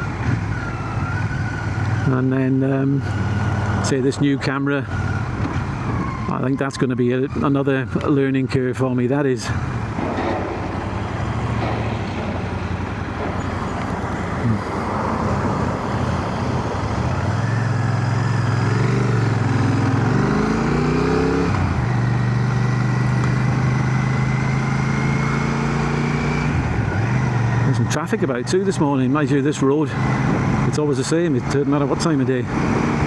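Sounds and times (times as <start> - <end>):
wind noise in helmet: 5.2 - 6.3
motorcycle engine running: 9.6 - 25.4.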